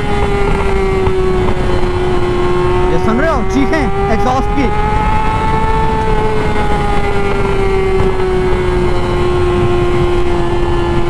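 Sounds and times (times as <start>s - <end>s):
motorcycle engine screaming: 0.0s - 11.0s
wind rush: 0.0s - 11.0s.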